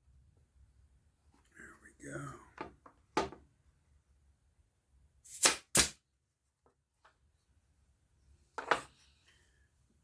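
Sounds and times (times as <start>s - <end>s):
pin nailer shots into wood: 5.3s - 6.0s.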